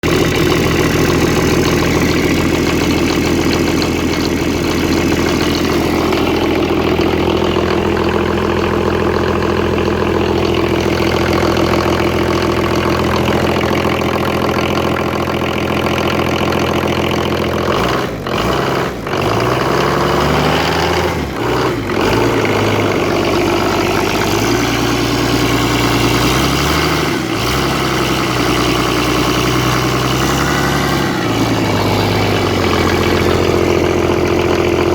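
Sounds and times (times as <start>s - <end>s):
diesel engine idling and revving: 0.0s - 34.9s.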